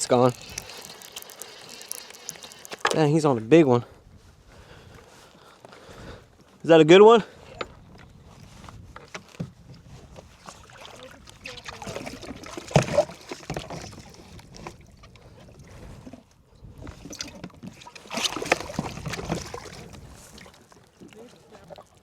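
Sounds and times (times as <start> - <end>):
water splashing and sloshing: 0.0 - 3.3, 7.9 - 22.0.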